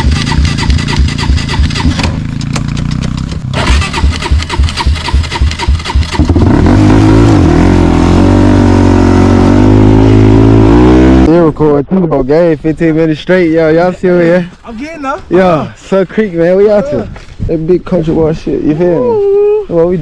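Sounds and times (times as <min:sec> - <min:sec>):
off-road vehicle engine chugging: 0:00.0 - 0:06.8.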